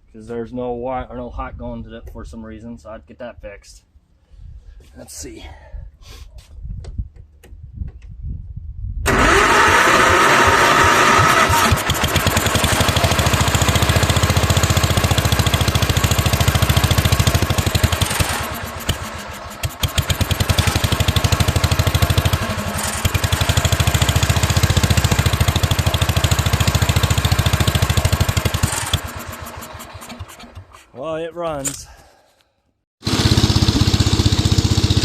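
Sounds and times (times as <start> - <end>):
lawn tractor engine running: 9.1 - 30.9, 33.0 - 35.0.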